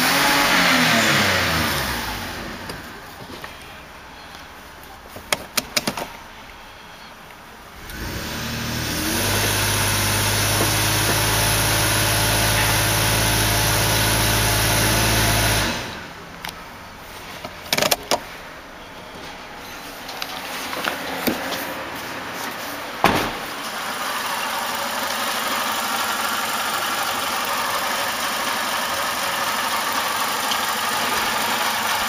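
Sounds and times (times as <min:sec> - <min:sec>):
engine revving: 0:00.0 - 0:02.7, 0:07.8 - 0:16.1.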